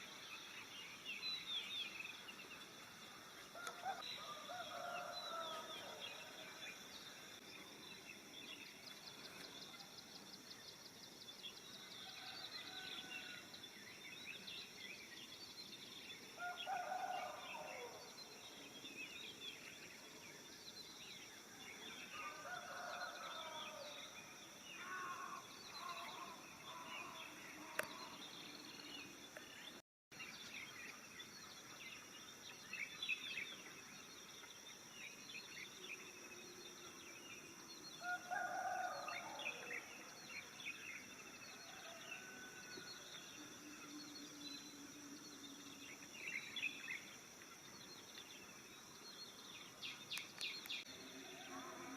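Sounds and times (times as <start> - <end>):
birds chirping and trilling: 3.4 - 51.9
high insect drone: 30.4 - 51.9.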